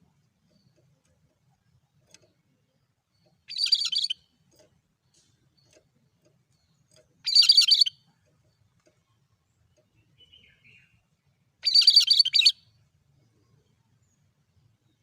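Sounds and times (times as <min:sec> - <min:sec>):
bird singing high phrases: 0:03.1 - 0:04.3, 0:06.6 - 0:08.1, 0:10.0 - 0:12.8.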